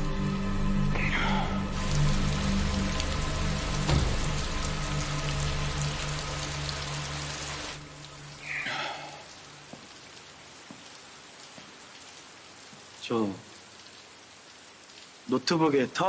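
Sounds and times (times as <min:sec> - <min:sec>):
low musical drone: 0:00.0 - 0:08.4
rain hiss: 0:00.0 - 0:16.0.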